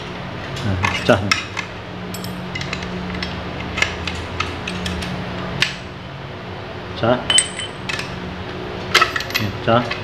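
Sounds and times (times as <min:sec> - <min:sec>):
steady low hum: 0:00.0 - 0:10.0
metallic clinks and taps: 0:02.1 - 0:05.0.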